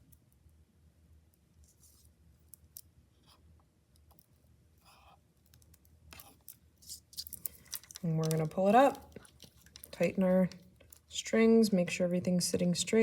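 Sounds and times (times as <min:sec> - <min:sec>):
scratchy rustle of cord: 0:01.6 - 0:02.5, 0:04.2 - 0:11.2
plastic beads clicking: 0:07.2 - 0:11.2.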